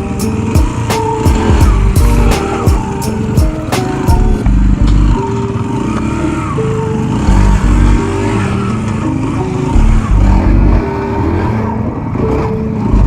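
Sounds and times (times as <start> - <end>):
music with heavy bass beat: 0.0 - 5.2, 9.8 - 11.6
pit bike engines revving: 0.0 - 13.0.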